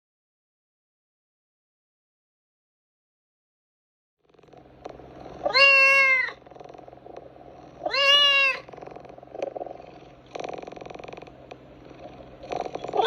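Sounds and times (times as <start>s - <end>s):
low steady rumble: 4.5s - 13.0s
cat meowing: 5.4s - 6.4s, 7.8s - 8.7s, 12.8s - 13.0s.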